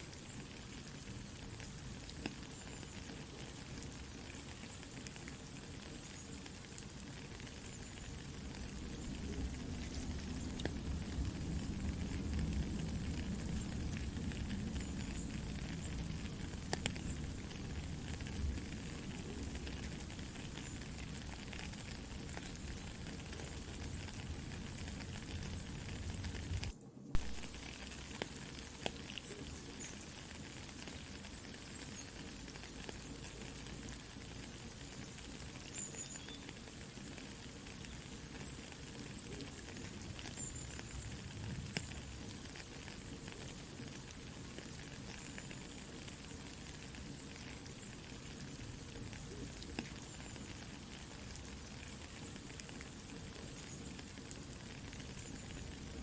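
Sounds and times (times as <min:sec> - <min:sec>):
campfire crackling: 0:00.0 - 0:56.0
soft rain: 0:00.0 - 0:56.0.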